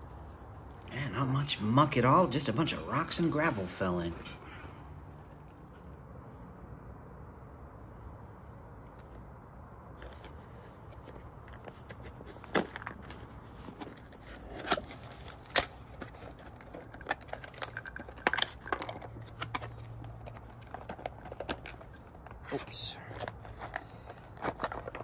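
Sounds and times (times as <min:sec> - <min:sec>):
hard objects clicking and knocking: 0:10.0 - 0:22.4, 0:23.1 - 0:25.0.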